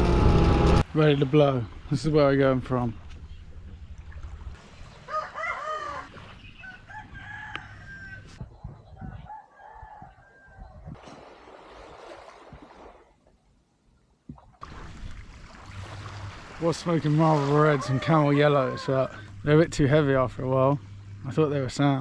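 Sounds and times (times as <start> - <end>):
roosters crowing: 5.0 - 8.4, 9.0 - 10.8, 17.3 - 19.4.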